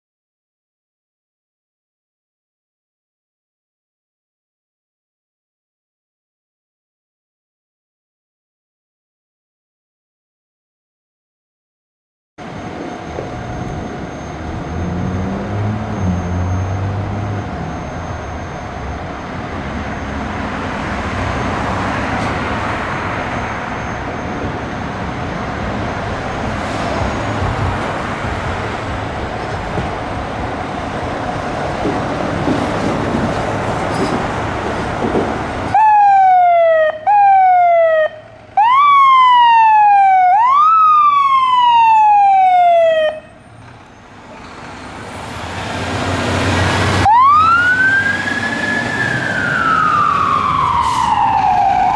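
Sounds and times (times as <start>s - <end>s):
fire engine electronic siren: 12.4s - 29.1s, 35.7s - 43.6s, 45.0s - 51.9s
road and engine noise: 12.4s - 51.9s.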